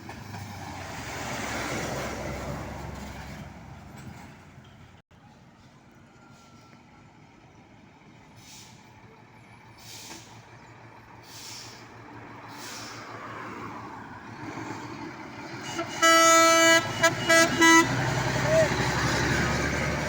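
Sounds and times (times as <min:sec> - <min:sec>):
truck engine rumble: 0:00.0 - 0:20.0
short air hisses: 0:08.4 - 0:08.9, 0:09.8 - 0:10.4, 0:11.2 - 0:11.8, 0:12.5 - 0:13.2
truck air horn blast: 0:15.6 - 0:18.8.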